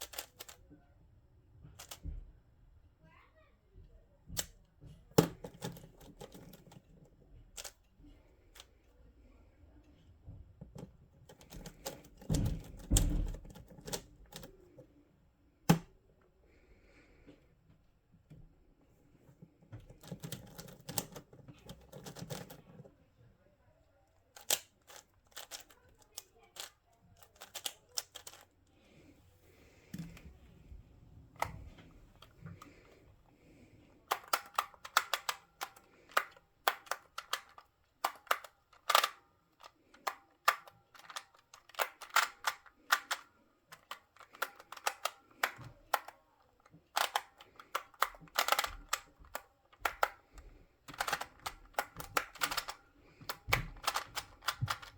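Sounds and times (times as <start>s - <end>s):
puzzle cube clicking: 0.0s - 0.6s, 1.8s - 2.0s, 5.2s - 6.8s, 7.6s - 7.8s, 11.3s - 14.6s, 19.9s - 22.6s, 24.4s - 28.5s, 34.0s - 46.2s, 46.9s - 54.9s.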